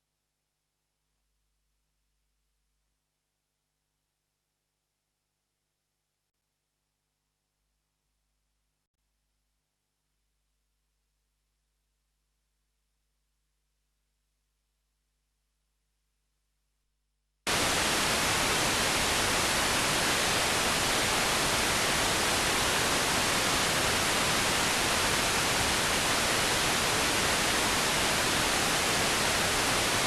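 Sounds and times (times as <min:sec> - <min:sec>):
steady static hiss: 0:17.5 - 0:30.0.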